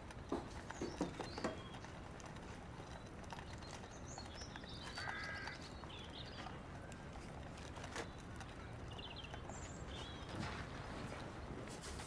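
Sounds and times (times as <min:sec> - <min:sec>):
bird chirps: 0:02.9 - 0:06.6.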